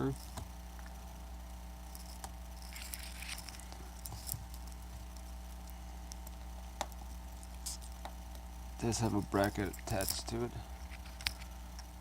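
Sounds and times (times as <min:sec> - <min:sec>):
low electrical hum: 0:00.0 - 0:12.0
screwdriver clicking and scratching: 0:02.0 - 0:05.2, 0:09.1 - 0:11.9.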